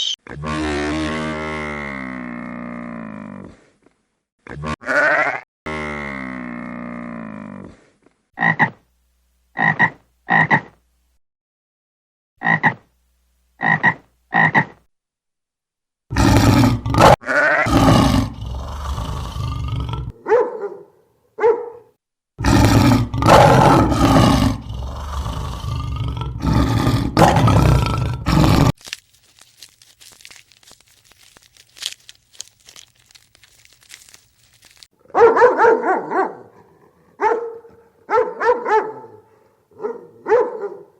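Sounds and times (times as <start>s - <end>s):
rough animal calls: 22.4s - 34.9s.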